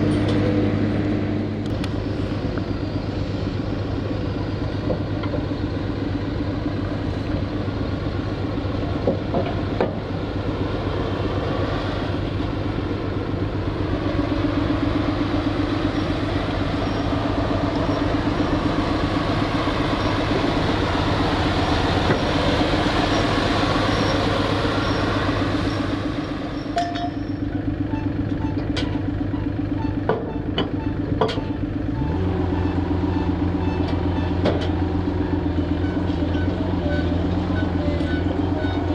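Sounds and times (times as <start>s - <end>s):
heavy diesel engine running: 0.0s - 38.9s
faint repeating beep: 29.3s - 34.5s, 35.2s - 38.9s.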